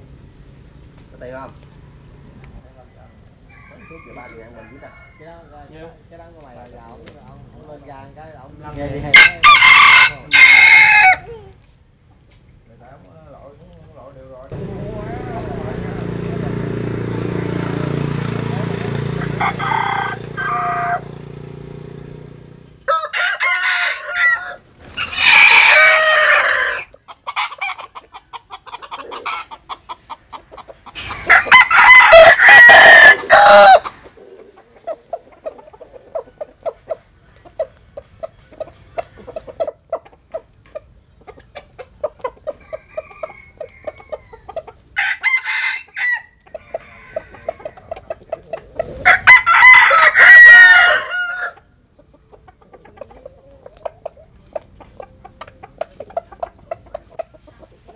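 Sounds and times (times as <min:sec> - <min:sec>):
roosters crowing: 0:01.2 - 0:06.4, 0:08.6 - 0:11.6, 0:14.5 - 0:40.5, 0:41.5 - 0:57.2
soft clucks: 0:26.9 - 0:31.2, 0:33.8 - 0:44.8, 0:46.4 - 0:49.0, 0:52.0 - 0:57.9.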